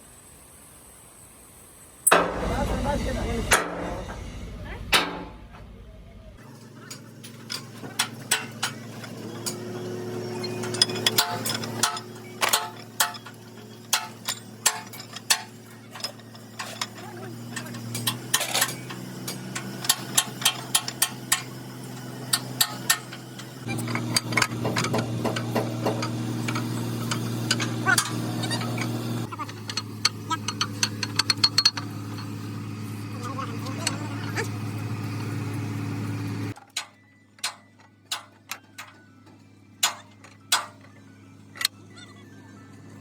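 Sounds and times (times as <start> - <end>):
steady hum: 2.1 - 36.6
tools tapping on metal: 6.8 - 9.8, 10.4 - 32.4, 36.6 - 39.0, 39.8 - 41.0.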